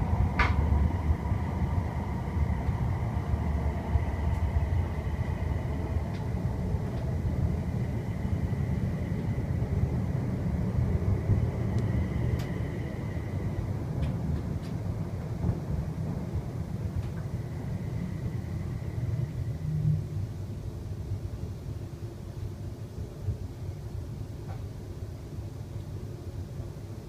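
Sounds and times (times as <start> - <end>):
faint high whine: 0.0 - 13.9, 17.0 - 22.2
train interior rumble: 0.0 - 27.0.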